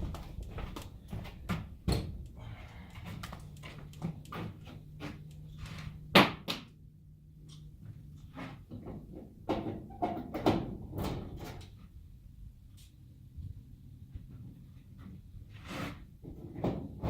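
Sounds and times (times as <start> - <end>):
faint low hum: 0.0 - 6.1.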